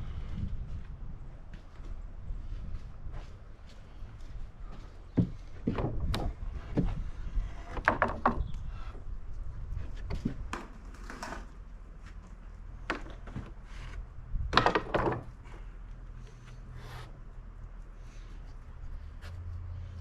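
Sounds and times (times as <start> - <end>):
wooden boards knocking on a stack: 14.5 - 15.3.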